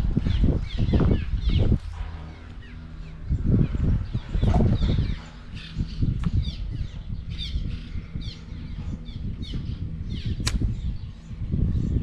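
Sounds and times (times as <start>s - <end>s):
steady low rumble: 0.0s - 12.0s
small birds chirping: 0.1s - 12.0s
sharp click: 10.4s - 10.7s.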